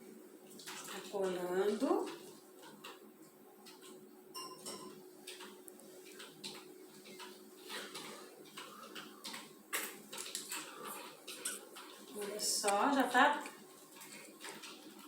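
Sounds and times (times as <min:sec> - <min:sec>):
wooden sticks tapping on paper: 0:03.6 - 0:15.0.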